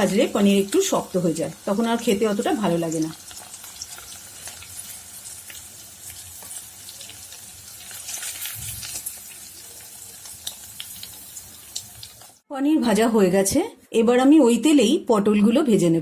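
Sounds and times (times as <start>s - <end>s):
cheese frying in hot oil: 0.0s - 12.4s
oil spattering crackles: 2.2s - 12.4s.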